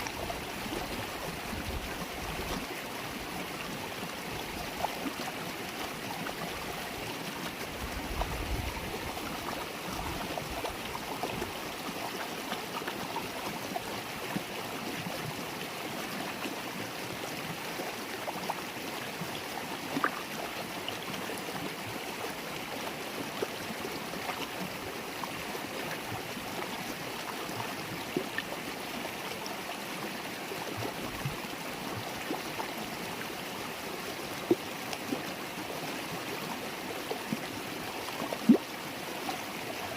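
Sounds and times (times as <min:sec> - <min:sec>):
river water babbling: 0:00.0 - 0:39.9
water splashes and drips: 0:33.9 - 0:39.9.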